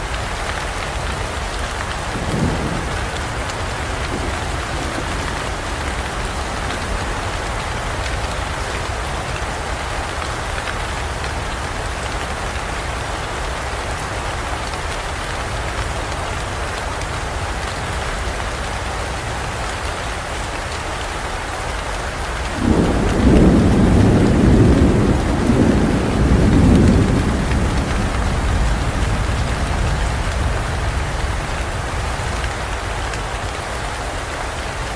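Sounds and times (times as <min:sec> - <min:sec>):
heavy rain falling: 0:00.0 - 0:34.9
thunder rumbling: 0:01.1 - 0:09.9, 0:22.5 - 0:33.1.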